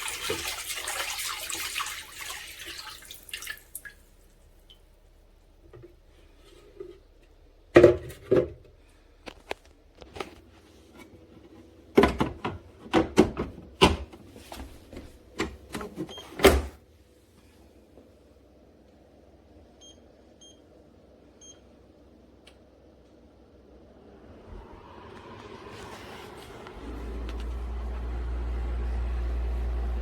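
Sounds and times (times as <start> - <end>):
objects knocking and clattering: 7.7 - 8.7.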